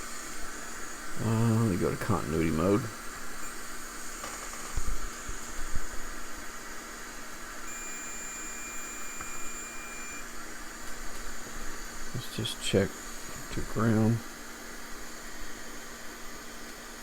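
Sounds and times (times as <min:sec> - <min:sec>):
multimeter continuity beep: 0:03.4 - 0:03.7, 0:07.6 - 0:10.4.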